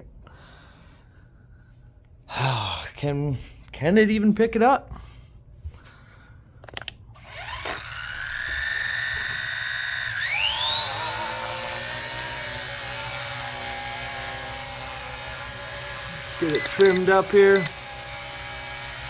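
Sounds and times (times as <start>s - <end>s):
clicks: 6.6s - 8.6s
helicopter electric motor whine: 6.7s - 19.0s.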